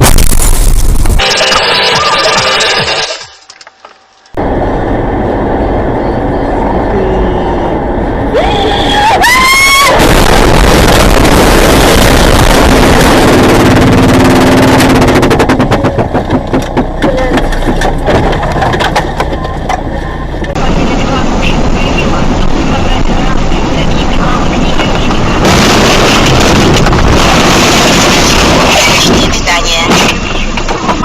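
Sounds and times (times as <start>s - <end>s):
loud rushing noise: 4.4s - 16.6s, 20.5s - 31.0s
rapid clicks and knocks: 14.4s - 19.8s.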